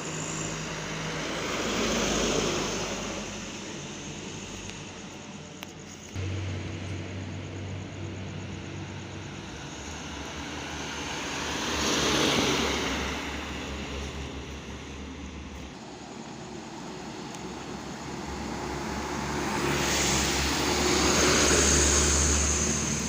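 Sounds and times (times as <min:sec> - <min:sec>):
truck engine droning: 0:06.1 - 0:15.0.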